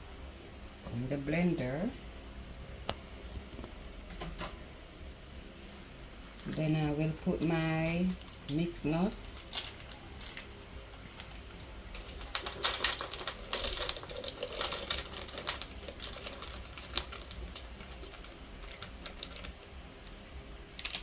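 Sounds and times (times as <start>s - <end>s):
nuts clattering into blender jar: 12.0s - 19.5s.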